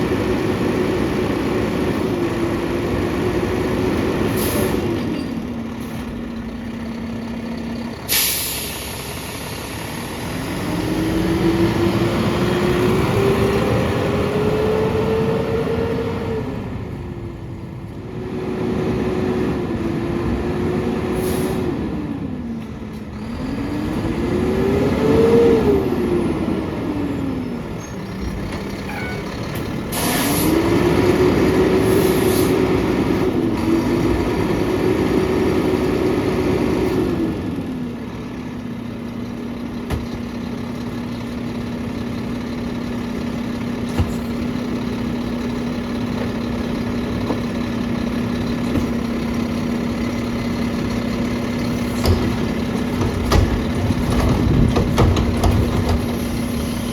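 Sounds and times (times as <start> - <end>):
truck engine revving: 0.0 - 17.0, 18.1 - 22.4, 23.2 - 56.9
air hiss: 8.1 - 9.7.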